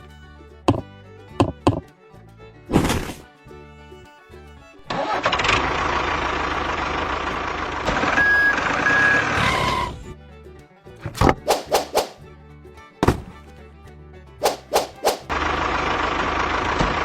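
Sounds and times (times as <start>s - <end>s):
vehicle engine starting and running: 0.6s - 1.9s, 4.7s - 10.1s, 14.3s - 17.0s
short high beeps: 8.2s - 9.6s.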